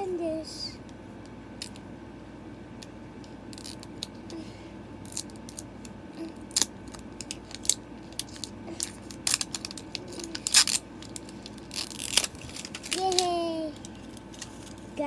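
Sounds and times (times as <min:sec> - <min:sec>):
plastic packaging crinkling and clicking: 0:05.0 - 0:15.0.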